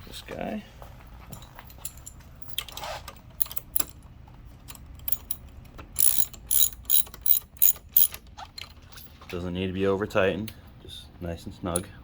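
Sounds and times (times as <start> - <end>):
metal tools clinking: 1.3 - 4.0, 4.6 - 9.2
ratchet wrench clicking: 3.4 - 3.9, 4.7 - 8.2.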